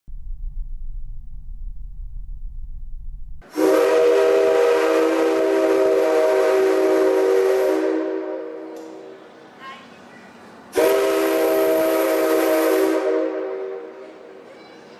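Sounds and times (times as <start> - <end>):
low rumble: 0.1 - 3.5
steam locomotive whistle: 3.4 - 9.1, 10.7 - 14.2.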